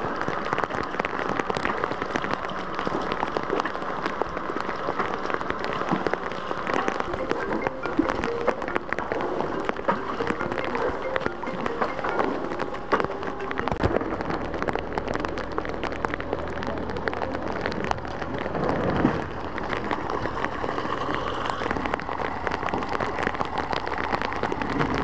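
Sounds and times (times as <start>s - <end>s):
heavy rain on hard surfaces: 0.0s - 25.0s.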